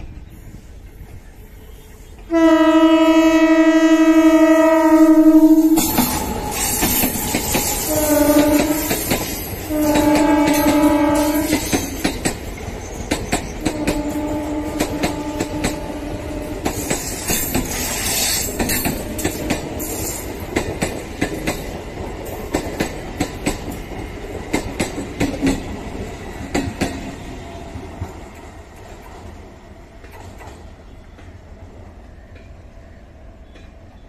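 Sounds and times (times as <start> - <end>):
train coaches rumbling: 0.0 - 34.0
wheels clattering over rail joints: 5.8 - 15.8, 16.6 - 27.1.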